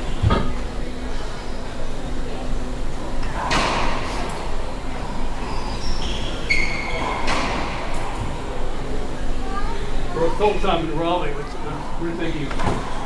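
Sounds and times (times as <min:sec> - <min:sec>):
steady low hum: 0:00.0 - 0:13.0
shoe squeaks: 0:05.4 - 0:07.3.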